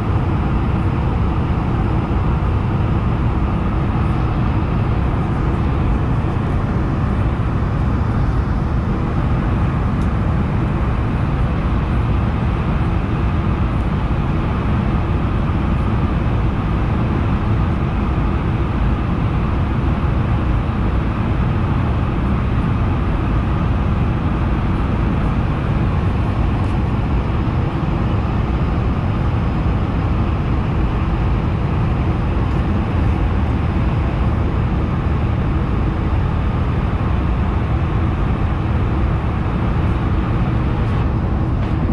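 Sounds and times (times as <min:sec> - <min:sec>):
jet engines rumbling: 0:00.0 - 0:41.9
rushing airflow: 0:23.8 - 0:41.9.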